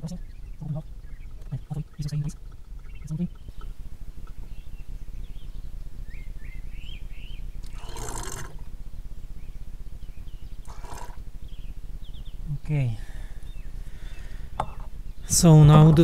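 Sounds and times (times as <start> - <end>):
small birds chirping: 0.0 - 16.0
steady low hum: 0.0 - 16.0.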